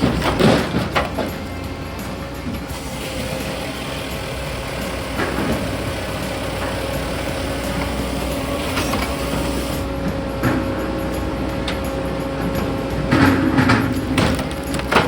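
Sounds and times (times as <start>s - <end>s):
diesel engine hum: 0.0s - 15.0s
machinery whine: 0.0s - 15.0s.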